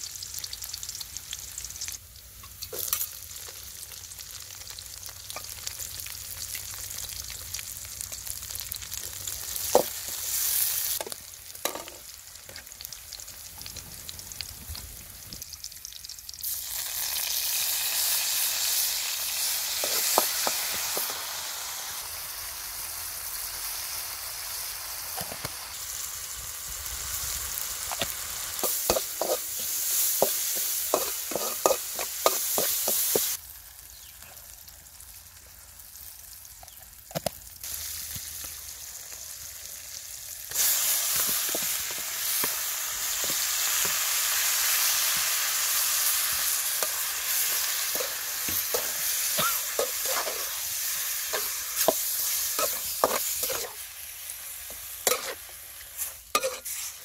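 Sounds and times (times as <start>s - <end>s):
food sizzling in a wok: 0.0s - 57.0s
metal spatula scraping a pan: 28.6s - 33.2s, 46.8s - 50.6s, 51.3s - 53.8s, 55.0s - 57.0s.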